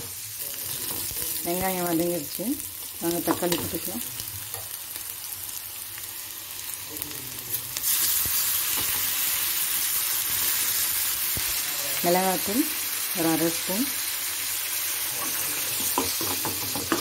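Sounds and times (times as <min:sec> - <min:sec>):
onions sizzling in hot oil: 0:00.0 - 0:17.0
metal spoon stirring in pan: 0:15.1 - 0:17.0.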